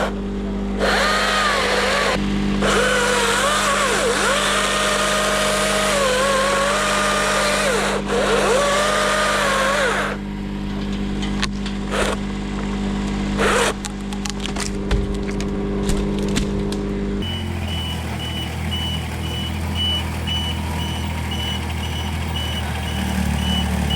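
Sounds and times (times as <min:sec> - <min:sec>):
steady engine hum: 0:00.0 - 0:23.9
chainsaw cutting and revving: 0:00.8 - 0:10.2, 0:17.2 - 0:23.9.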